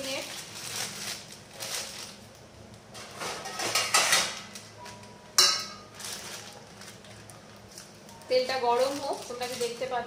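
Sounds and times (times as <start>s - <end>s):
metal kitchen utensils clattering: 3.0s - 4.6s, 5.4s - 6.4s.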